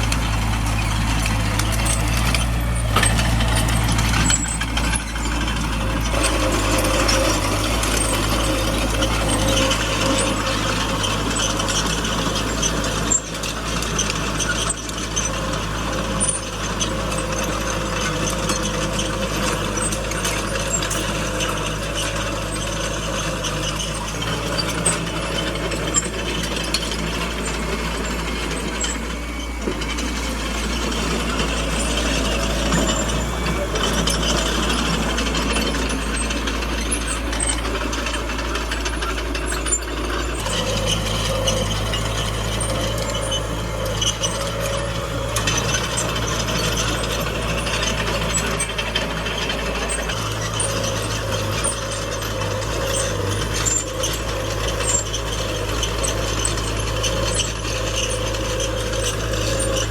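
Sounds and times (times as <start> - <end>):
bulldozer diesel engine under load: 0.0 - 59.9
steel tracks clanking and rattling: 0.0 - 59.9.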